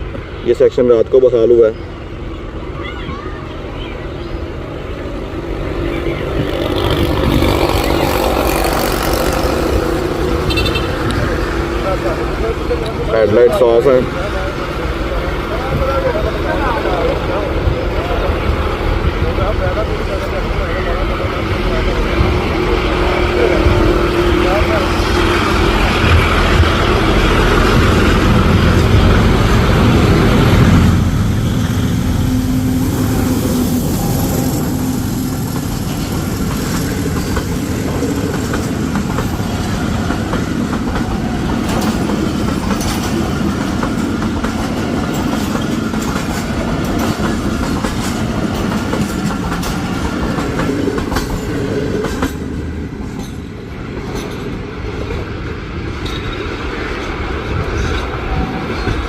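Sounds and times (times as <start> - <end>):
train rumbling: 0.0 - 59.0
wheels clicking over rail joints: 34.8 - 59.0.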